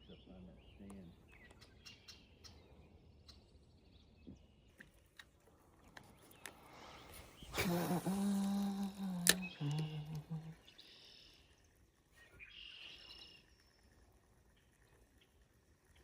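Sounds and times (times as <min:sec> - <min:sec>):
faint bird chirps: 0:00.0 - 0:05.0, 0:06.0 - 0:16.0
river ambience: 0:04.7 - 0:14.2
small ticks: 0:04.7 - 0:16.0.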